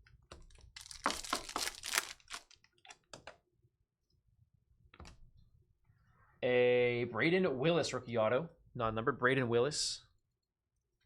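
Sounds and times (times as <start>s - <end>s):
plastic wrapping crackling: 0.7s - 2.7s.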